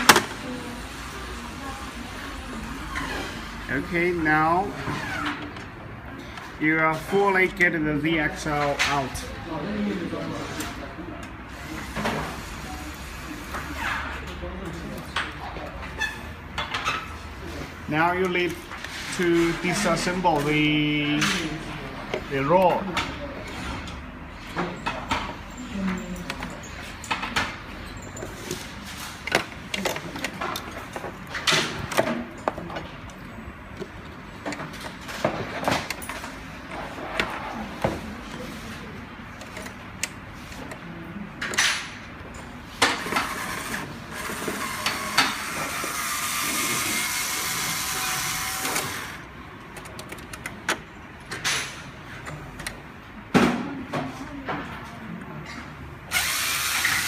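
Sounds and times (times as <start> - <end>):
clicks and knocks of tools: 20.4 - 37.9, 49.6 - 52.8
steady motor whir: 43.2 - 49.2, 56.1 - 57.0.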